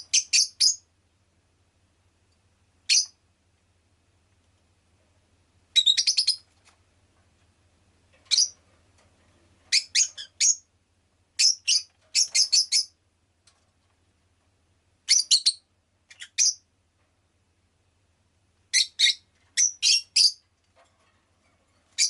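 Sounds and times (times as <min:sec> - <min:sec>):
lovebird shrill chirps: 0:00.1 - 0:00.8, 0:02.9 - 0:03.2, 0:05.7 - 0:06.4, 0:08.3 - 0:08.6, 0:09.7 - 0:10.6, 0:11.4 - 0:12.9, 0:15.1 - 0:16.6, 0:18.7 - 0:20.4.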